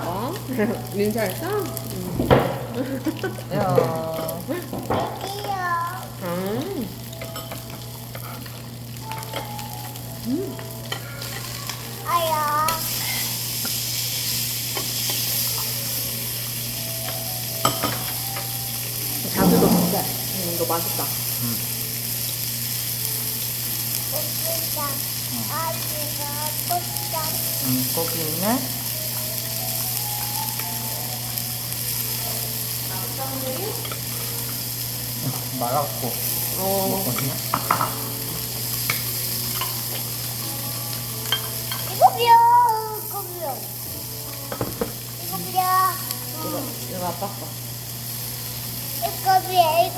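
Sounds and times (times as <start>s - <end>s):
meat sizzling: 0.0s - 49.9s.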